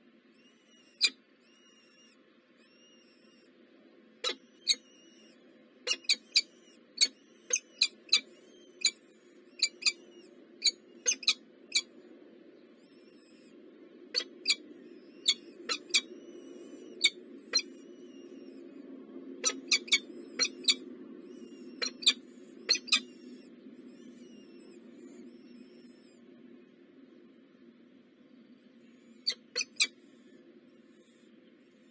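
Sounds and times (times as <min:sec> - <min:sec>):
faint bird calls: 0:00.0 - 0:31.9
steady low hum: 0:00.0 - 0:31.9
small birds chirping: 0:00.3 - 0:31.9.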